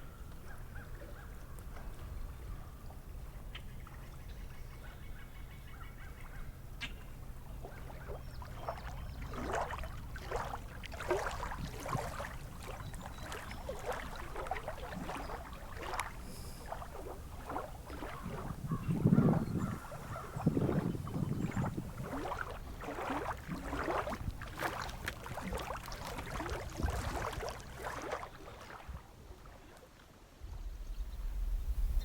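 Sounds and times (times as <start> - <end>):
waterbirds calling: 0.0 - 30.0
steady low rumble: 30.4 - 32.0.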